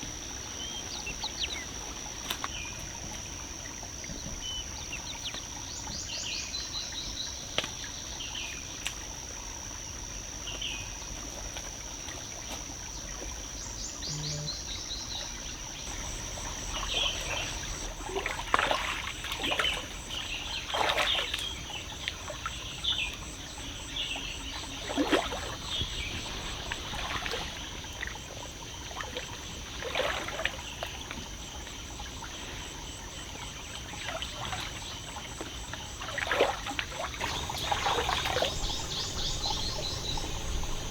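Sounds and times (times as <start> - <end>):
water trickling and pouring: 24.8 - 28.3, 36.1 - 40.9
bird chirps: 37.2 - 40.9.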